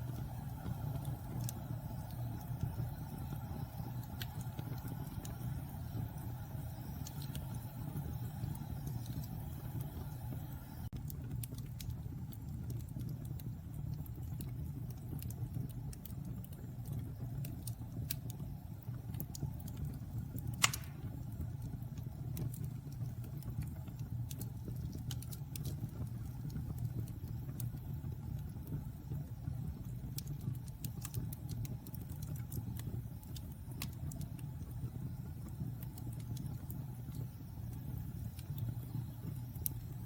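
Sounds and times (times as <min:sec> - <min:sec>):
fire crackling: 0:00.0 - 0:40.0
fire flames rumbling: 0:00.0 - 0:40.0
loud wood pop: 0:20.6 - 0:21.0.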